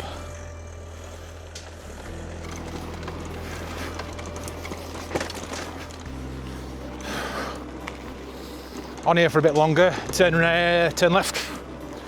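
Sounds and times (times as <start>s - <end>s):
bike tyres on rough track: 0.0s - 12.0s
low hum: 0.0s - 12.0s
bike rattling and knocking: 1.6s - 6.6s.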